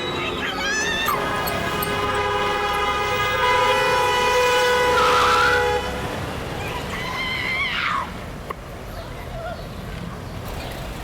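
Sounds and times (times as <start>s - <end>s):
vehicle horn blast: 1.1s - 6.1s.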